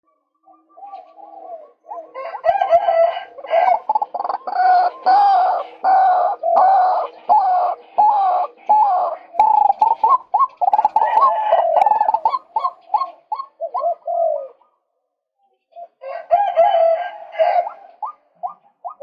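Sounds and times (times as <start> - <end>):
waterhen calling harshly: 3.7 - 13.9.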